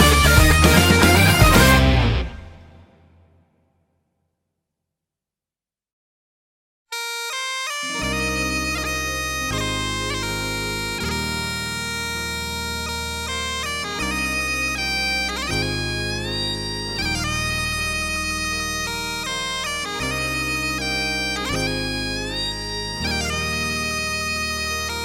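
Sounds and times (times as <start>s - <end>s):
low bass line: 0.0s - 2.6s, 7.9s - 25.0s
bagpipe melody: 0.0s - 2.8s, 6.9s - 25.0s.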